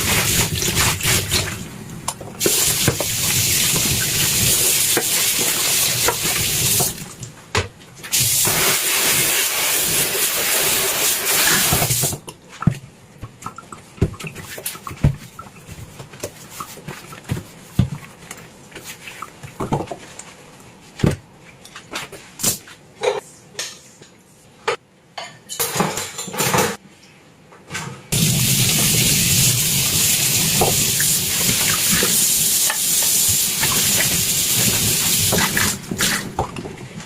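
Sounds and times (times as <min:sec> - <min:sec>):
kitchen tap running: 0:00.0 - 0:01.7, 0:02.4 - 0:07.2, 0:08.1 - 0:12.2, 0:28.2 - 0:36.4
dishes and cutlery clinking: 0:24.7 - 0:26.8.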